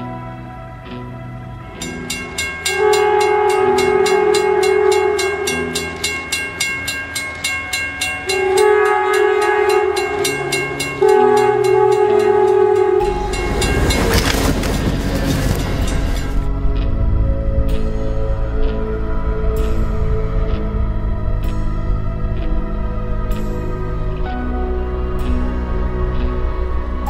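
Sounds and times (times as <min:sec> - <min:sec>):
train rushing through snow: 0:01.8 - 0:16.6
locomotive horn blasts: 0:02.6 - 0:06.9, 0:08.2 - 0:16.4.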